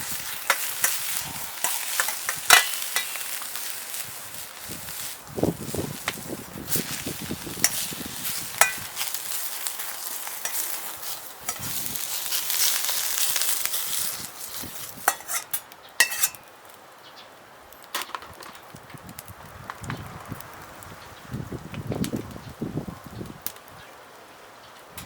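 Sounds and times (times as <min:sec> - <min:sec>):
food sizzling in a wok: 0:00.0 - 0:16.5
metal spatula clinking on wok: 0:00.4 - 0:03.3, 0:08.6 - 0:09.0, 0:10.3 - 0:10.7, 0:15.1 - 0:16.4.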